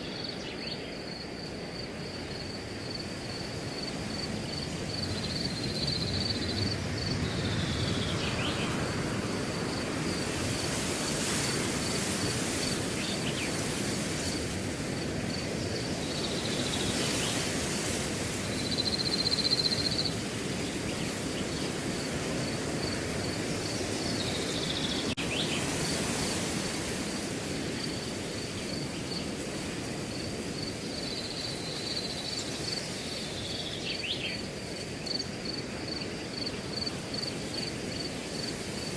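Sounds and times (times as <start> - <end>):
cricket chirping: 0.0 - 38.9
wind rustling through grass: 0.0 - 38.9.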